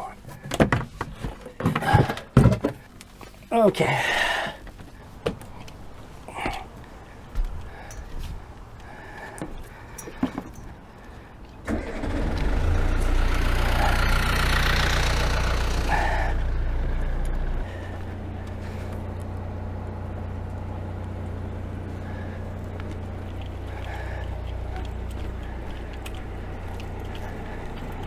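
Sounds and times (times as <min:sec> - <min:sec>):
diesel engine starting and idling: 0:11.6 - 0:28.0.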